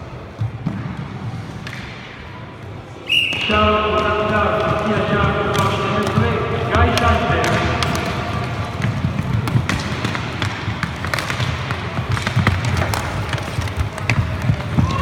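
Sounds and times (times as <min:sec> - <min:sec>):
hockey sticks clacking puck: 0:00.6 - 0:02.2, 0:03.2 - 0:15.0
skate wheels rolling on rink: 0:03.5 - 0:15.0.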